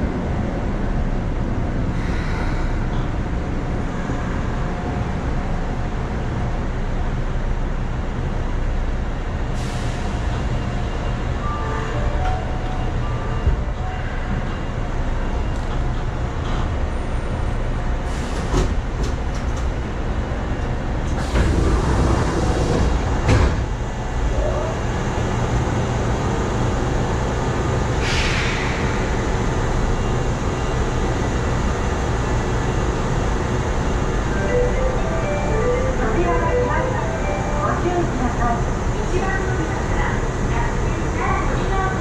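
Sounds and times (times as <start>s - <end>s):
electric train rumble: 0.0s - 42.0s.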